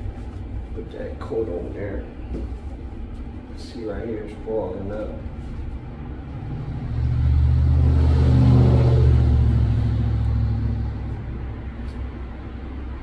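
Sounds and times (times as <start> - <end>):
vehicle engine driving past: 5.8 - 13.0.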